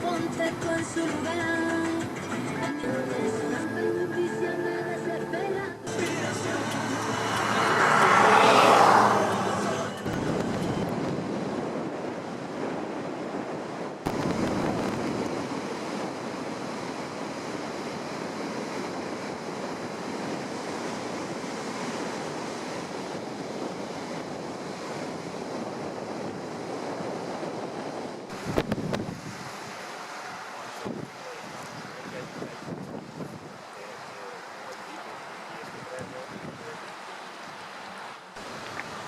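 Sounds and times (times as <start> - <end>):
sea surf washing in: 0.0 - 39.0
wind on microphone: 5.9 - 34.4, 35.6 - 37.8.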